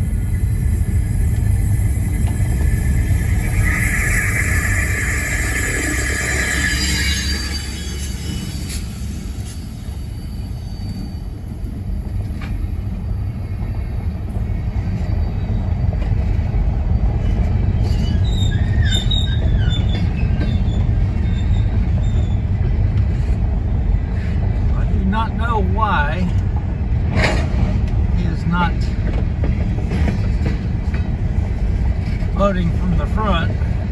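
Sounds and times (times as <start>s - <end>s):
train wheels rumbling on rail: 0.0s - 33.9s
faint wheel squeal: 1.4s - 11.5s, 17.8s - 22.6s.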